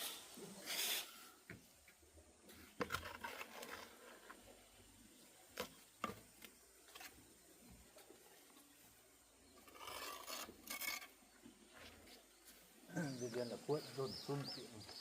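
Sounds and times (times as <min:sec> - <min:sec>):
rasping scrape: 0:09.6 - 0:11.1.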